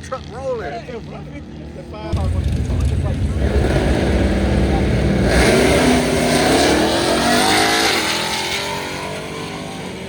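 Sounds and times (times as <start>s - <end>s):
pickup truck engine accelerating: 2.1s - 10.0s.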